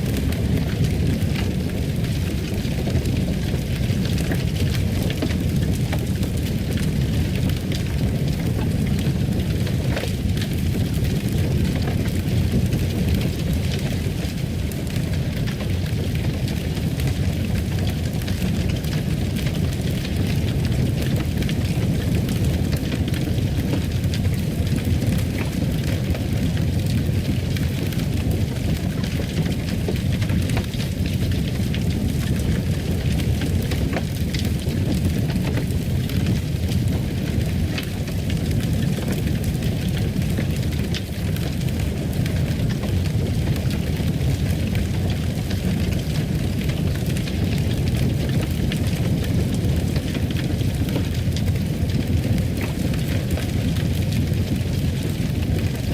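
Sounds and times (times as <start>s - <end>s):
fire crackling and popping: 0.0s - 55.9s
fire rushing: 0.0s - 55.9s.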